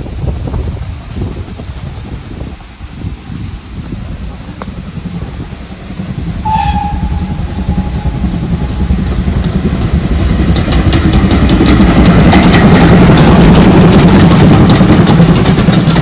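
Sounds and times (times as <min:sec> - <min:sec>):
train rumble: 0:00.0 - 0:16.0
steam train whistle: 0:06.4 - 0:09.4.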